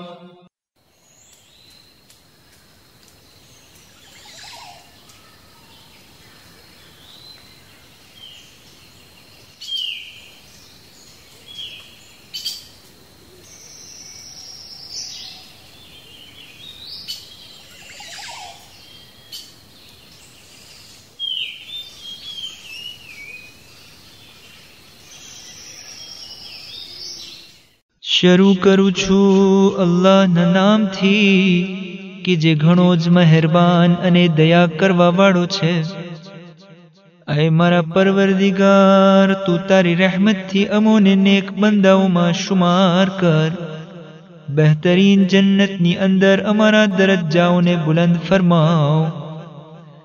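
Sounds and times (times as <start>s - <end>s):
birds chirping and calling: 1.1s - 27.7s.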